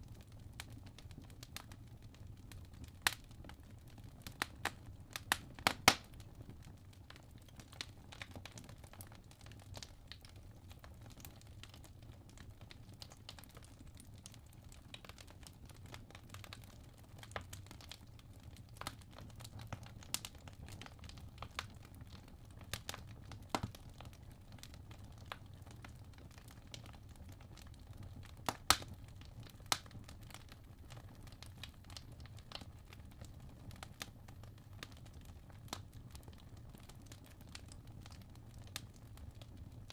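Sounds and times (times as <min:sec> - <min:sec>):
fire crackles and pops: 0:00.0 - 0:39.9
low rumble of flame: 0:00.0 - 0:39.9.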